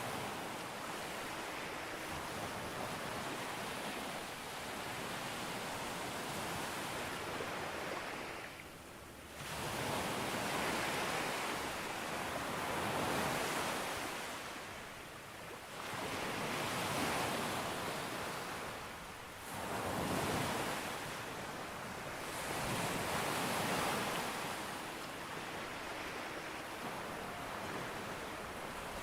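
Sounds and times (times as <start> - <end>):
sea waves breaking on beach: 15.6 - 29.0.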